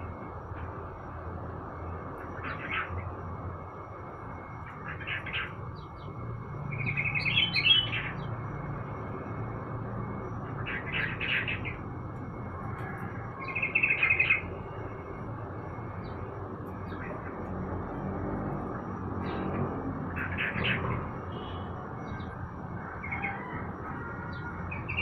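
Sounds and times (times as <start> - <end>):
thin steady high tone: 0.0 - 25.0
bird singing bubbly phrases: 4.6 - 8.4, 10.3 - 11.9.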